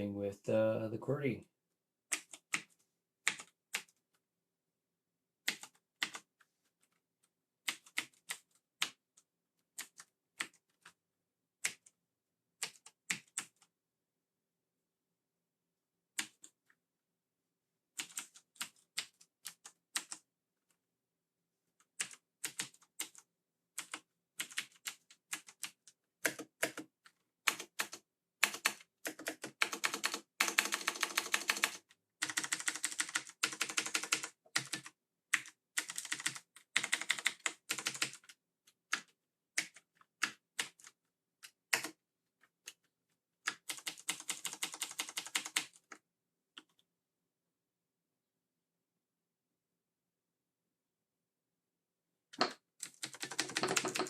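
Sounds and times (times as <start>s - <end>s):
mechanical keyboard keys clicking: 27.5s - 38.2s, 52.8s - 54.0s.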